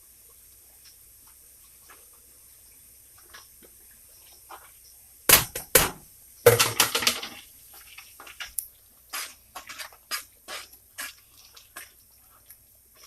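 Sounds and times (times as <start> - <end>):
utensils clattering against pot: 6.5 - 7.4.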